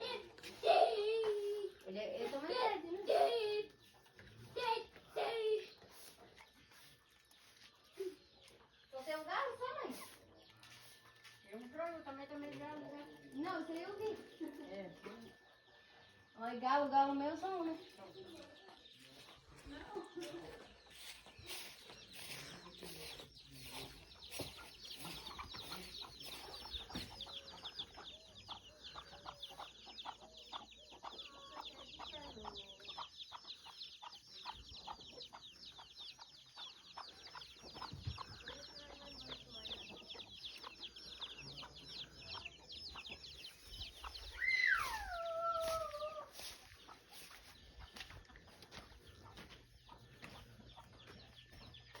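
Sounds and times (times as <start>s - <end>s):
chicks peeping: 0.0s - 52.0s
hens clucking: 17.4s - 52.0s.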